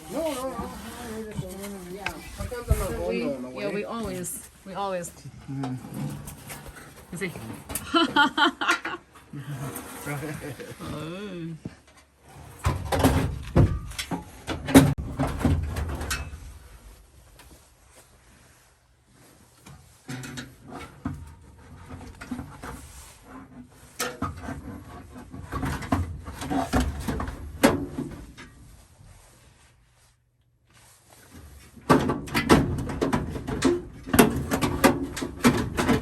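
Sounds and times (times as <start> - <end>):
knocks and rattles of handled objects: 31.2 - 36.0.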